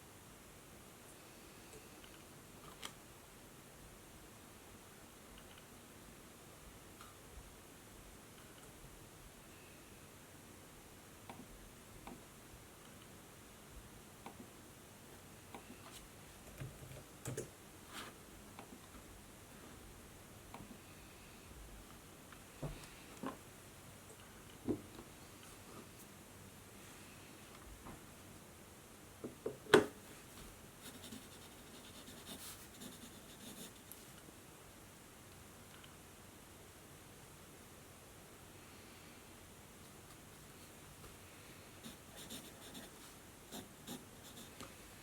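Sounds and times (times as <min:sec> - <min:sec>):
low steady hiss: 0:00.0 - 0:45.0
pen scratching on paper: 0:30.8 - 0:33.8, 0:41.8 - 0:44.5.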